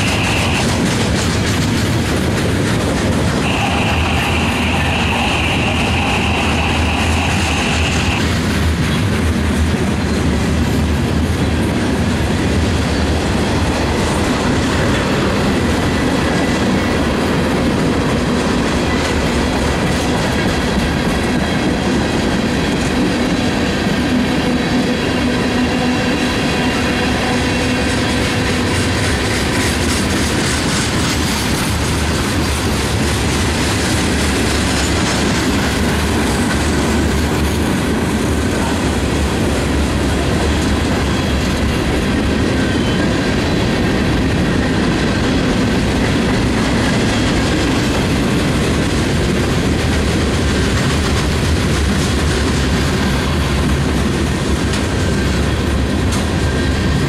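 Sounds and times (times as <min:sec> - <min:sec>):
high wheel squeal: 0:00.0 - 0:00.8, 0:03.4 - 0:08.3
train cars rumbling past: 0:00.0 - 0:57.0
wheels clattering on rails: 0:00.0 - 0:57.0.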